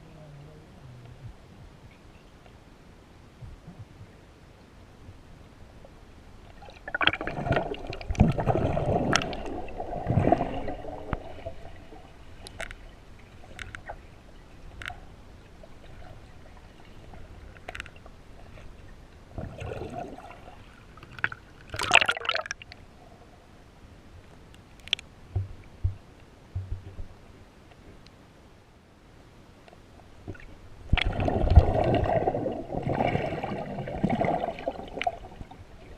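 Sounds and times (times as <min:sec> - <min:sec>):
water sloshing and gurgling: 0:05.8 - 0:23.2, 0:30.0 - 0:35.9
small clicks: 0:13.5 - 0:13.9, 0:24.5 - 0:25.1.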